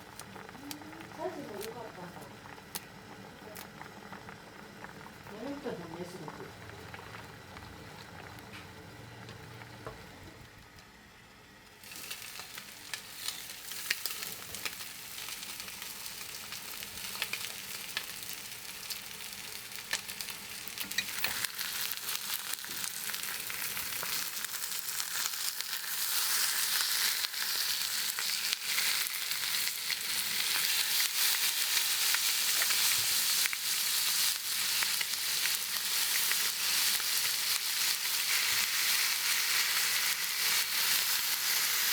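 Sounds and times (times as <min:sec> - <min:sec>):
food sizzling in a pan: 0:00.0 - 0:10.2, 0:11.4 - 0:41.9.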